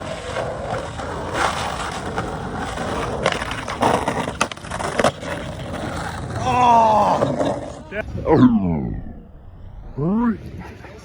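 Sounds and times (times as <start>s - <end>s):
skateboard clacks: 0.0s - 7.8s
skateboard wheels rolling on pavement: 0.0s - 8.0s.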